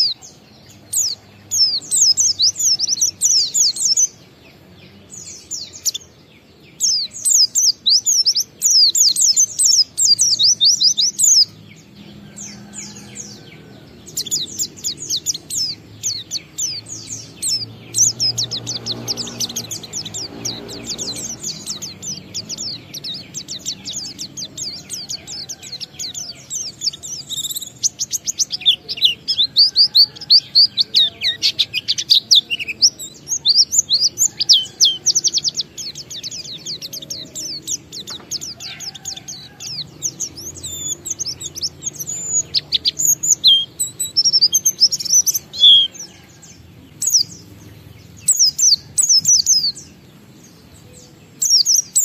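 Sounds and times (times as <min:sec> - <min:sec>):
bird singing rapid twittering: 0:00.0 - 0:52.0.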